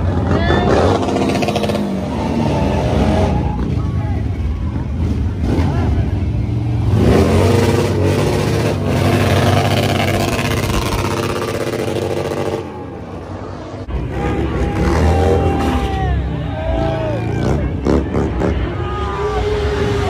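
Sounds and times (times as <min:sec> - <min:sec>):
motorcycle engine revving: 0:04.7 - 0:12.8.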